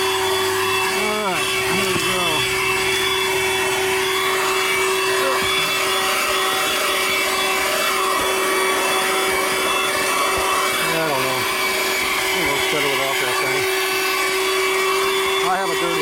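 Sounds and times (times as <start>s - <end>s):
handheld vacuum whining: 0.0s - 16.0s.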